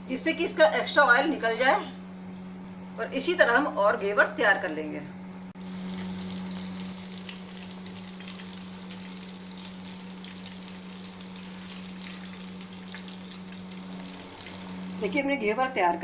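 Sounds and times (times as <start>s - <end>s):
batter sizzling in hot oil: 5.6s - 15.2s.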